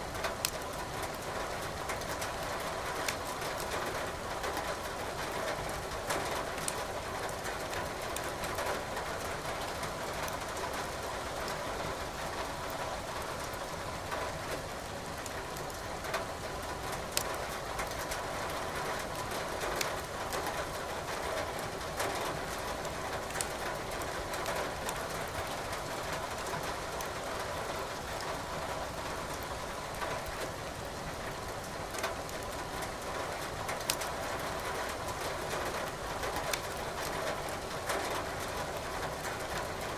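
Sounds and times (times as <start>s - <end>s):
logs crackling in fireplace: 33.8s - 34.0s.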